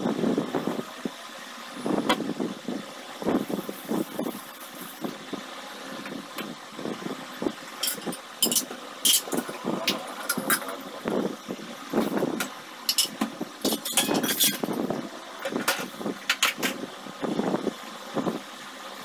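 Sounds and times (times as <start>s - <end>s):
steady background hum: 0.0s - 19.0s
cookware and cabinet doors clattering: 12.9s - 14.7s.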